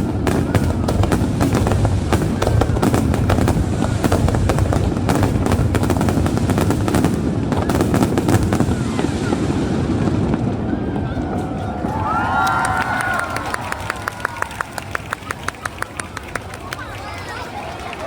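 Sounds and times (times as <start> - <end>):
fireworks crackling and banging: 0.0 - 14.0.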